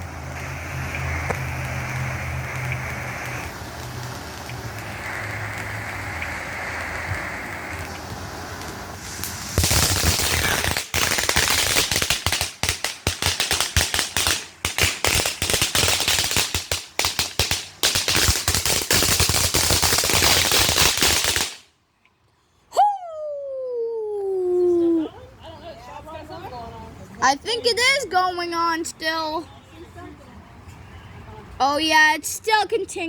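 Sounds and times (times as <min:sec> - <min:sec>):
firework cracking pops: 0:00.0 - 0:21.7
firework hissing: 0:00.0 - 0:21.7.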